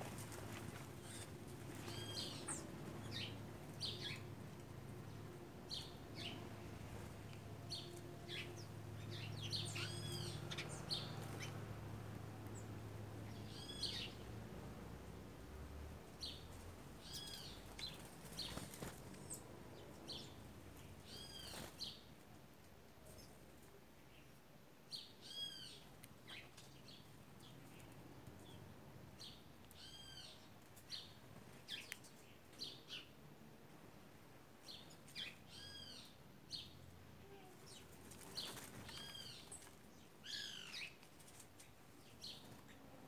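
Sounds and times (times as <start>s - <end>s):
birds chirping: 0.5s - 11.6s, 12.4s - 14.4s, 16.1s - 22.1s, 24.0s - 33.2s, 37.6s - 42.9s.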